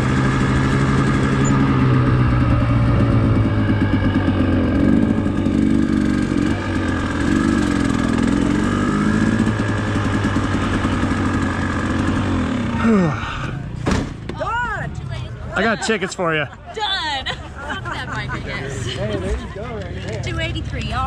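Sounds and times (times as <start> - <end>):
dirt bike engine idling: 0.0 - 14.8.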